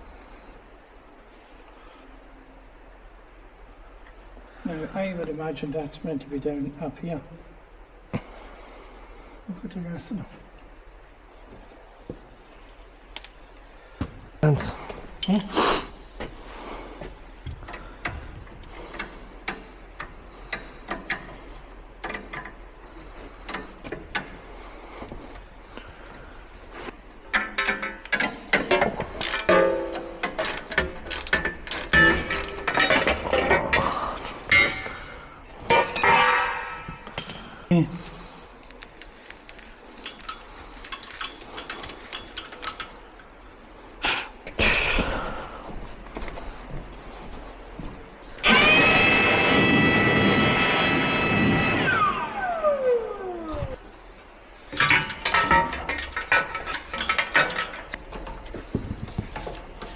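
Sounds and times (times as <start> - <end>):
scraping clatter: 26.7 - 37.6, 54.0 - 59.9
metal tools clinking: 27.2 - 38.1, 39.8 - 43.4, 54.0 - 59.9.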